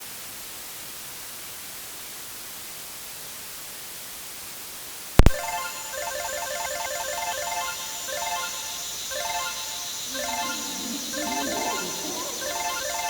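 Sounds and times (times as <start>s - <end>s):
beeping slot machine music: 5.5s - 13.0s.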